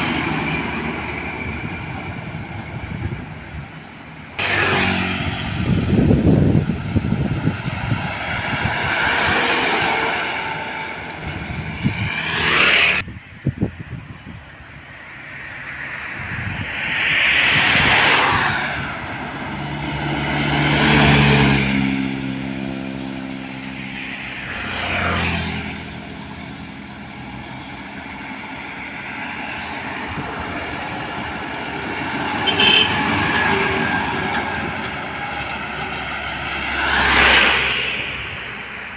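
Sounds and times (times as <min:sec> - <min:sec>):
deep diesel engine: 0:00.0 - 0:12.1
heavy vehicles driving past: 0:00.0 - 0:13.6, 0:14.6 - 0:38.9.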